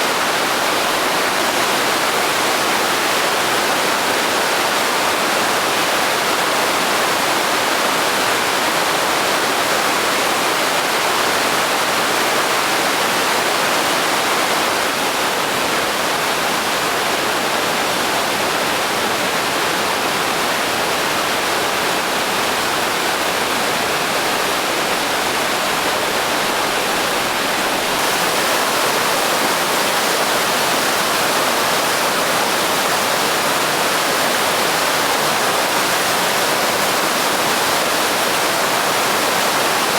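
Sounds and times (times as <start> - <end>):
waterfall thundering: 26.0 - 39.9.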